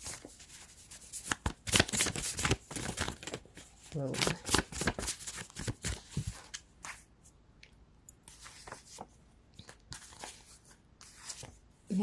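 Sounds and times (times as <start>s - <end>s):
cards flicking and rustling: 0.0s - 7.0s.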